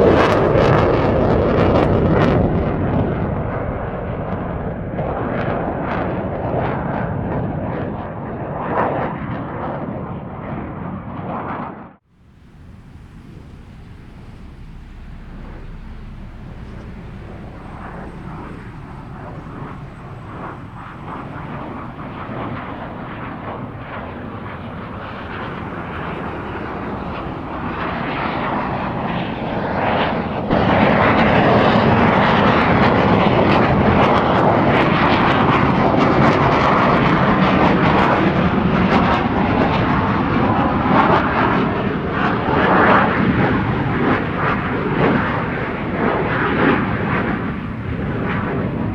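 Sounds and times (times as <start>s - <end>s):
fighter jet afterburner roar: 12.2s - 33.8s.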